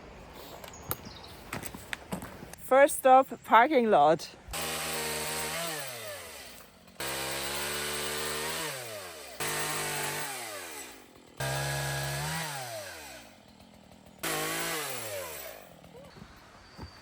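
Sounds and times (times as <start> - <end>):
string trimmer motor: 4.5 - 17.0.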